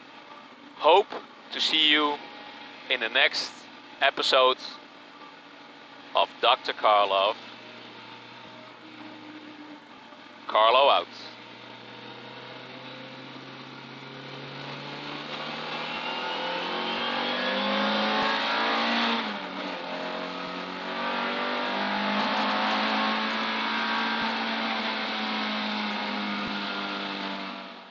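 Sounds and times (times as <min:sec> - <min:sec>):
car engine accelerating hard: 0:06.3 - 0:27.9.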